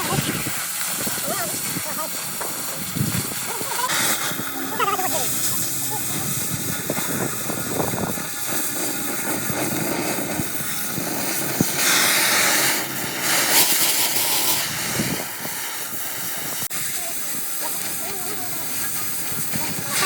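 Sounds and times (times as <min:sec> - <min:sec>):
loud hissing bursts: 0:00.0 - 0:20.0
workshop noise: 0:01.5 - 0:16.6.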